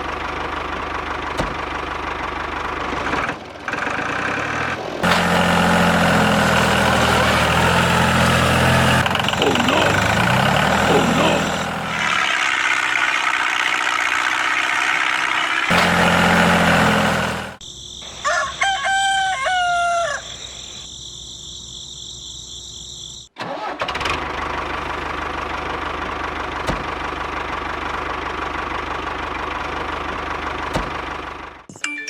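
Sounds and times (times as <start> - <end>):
steady engine running: 0.0 - 17.6
rooster crowing: 18.1 - 20.8.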